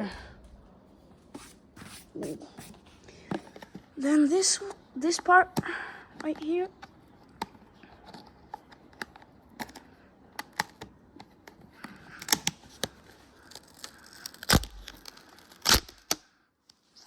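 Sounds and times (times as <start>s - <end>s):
adhesive decal peeling: 11.8s - 16.2s.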